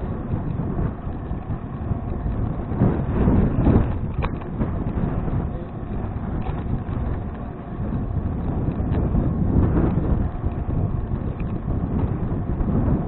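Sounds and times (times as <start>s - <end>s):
tyre and road noise: 0.0s - 13.0s
wind buffeting microphone: 0.0s - 13.0s
faint ticks: 9.8s - 12.1s.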